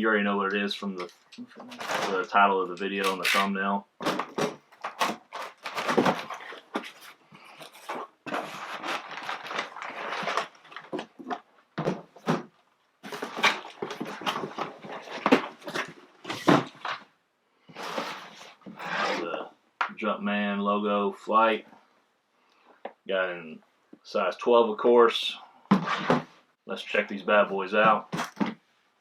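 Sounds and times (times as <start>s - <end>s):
cardboard box rustling and scraping: 5.4s - 10.9s.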